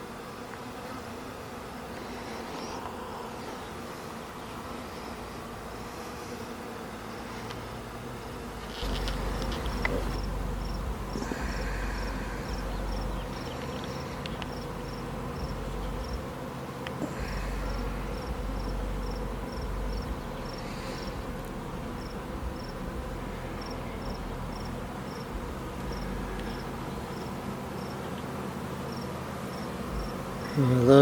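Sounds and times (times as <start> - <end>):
bee swarm humming: 0.0 - 31.0
cricket chirping: 8.8 - 16.4, 17.0 - 28.2, 28.8 - 31.0.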